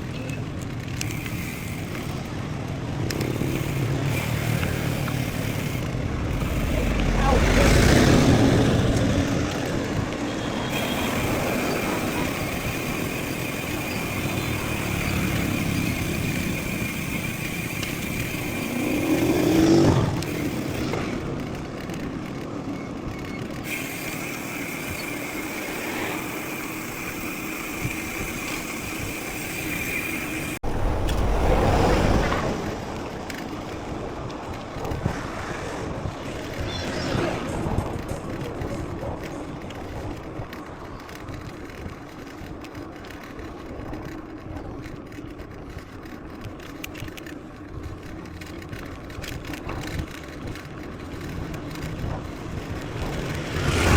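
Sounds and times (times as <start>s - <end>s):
bike tyre rumble and rattle: 0.0s - 53.9s
motor vehicle passing: 1.7s - 22.4s, 23.8s - 42.0s, 49.8s - 53.9s.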